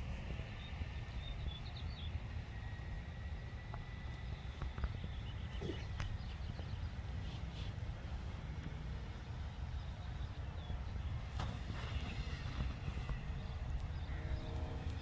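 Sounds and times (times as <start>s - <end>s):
wind rumbling on microphone: 0.0s - 15.0s
faint bird chirps: 4.6s - 7.6s.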